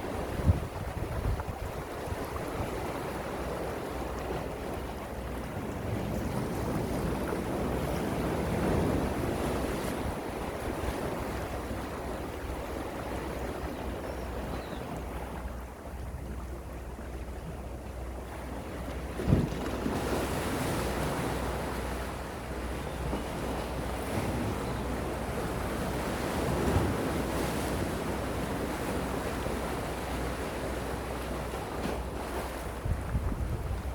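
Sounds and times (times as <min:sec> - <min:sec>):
sea waves washing in: 0:00.0 - 0:13.8
wind rumble on microphone: 0:00.0 - 0:16.5, 0:18.3 - 0:33.9.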